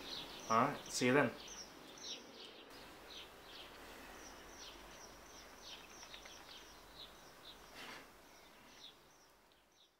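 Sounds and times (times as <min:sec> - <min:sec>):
small birds chirping: 0:00.0 - 0:09.9
steady low hiss: 0:00.0 - 0:09.9.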